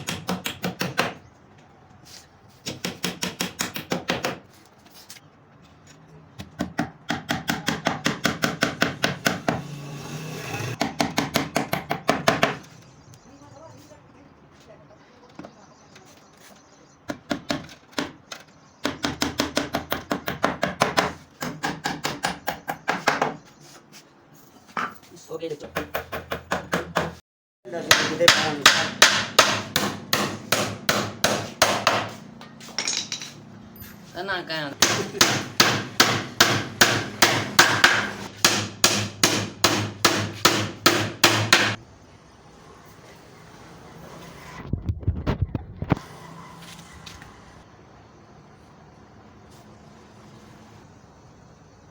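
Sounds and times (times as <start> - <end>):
hammering on wood: 0.0 - 1.2, 2.6 - 4.4, 6.4 - 9.7, 10.7 - 12.7, 18.8 - 23.4, 25.8 - 27.2, 27.8 - 32.2, 34.8 - 41.8
hand tool striking wood: 27.9 - 33.4, 34.8 - 41.8.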